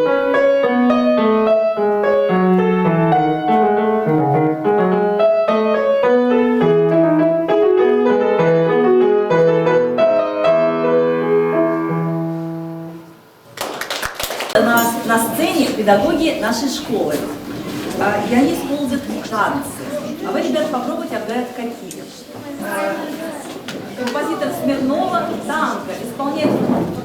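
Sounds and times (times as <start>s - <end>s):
classical piano piece: 0.0s - 13.4s.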